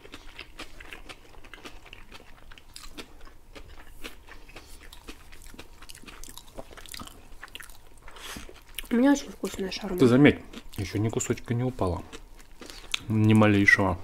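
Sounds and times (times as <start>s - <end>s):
wet chewing and biting: 0.0s - 9.0s.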